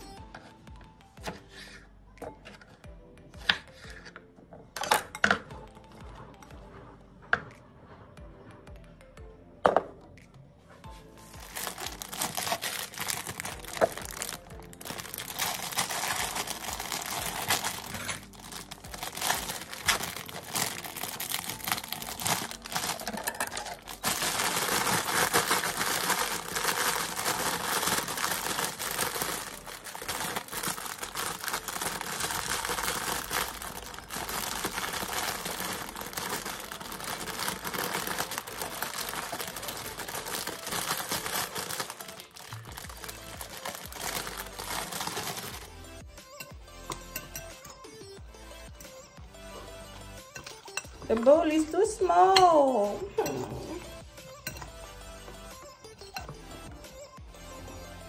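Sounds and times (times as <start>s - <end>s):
plastic bags crinkling: 11.2s - 45.7s.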